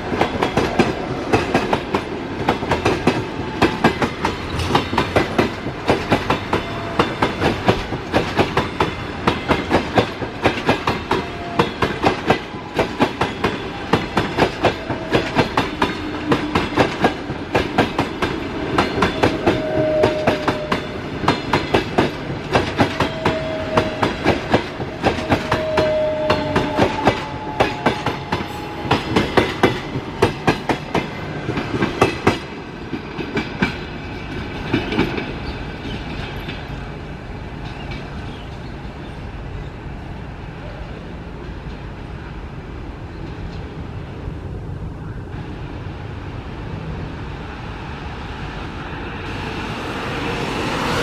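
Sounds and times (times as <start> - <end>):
train rumble: 0.0 - 51.0
train wheel squeals: 18.8 - 21.0, 22.8 - 30.7.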